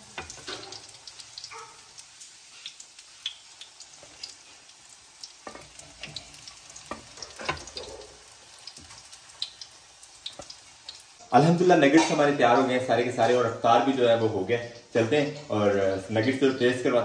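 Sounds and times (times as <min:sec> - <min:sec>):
food sizzling in oil: 0:00.0 - 0:14.0
metal spatula scraping pan: 0:05.4 - 0:08.2.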